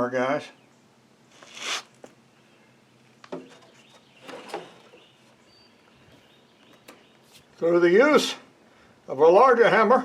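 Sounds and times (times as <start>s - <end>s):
bird chirping: 2.3s - 8.0s.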